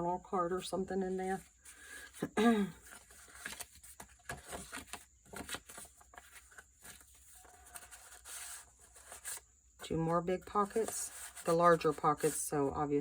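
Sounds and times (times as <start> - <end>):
paper pages rustling: 2.8 - 9.4, 10.4 - 12.6.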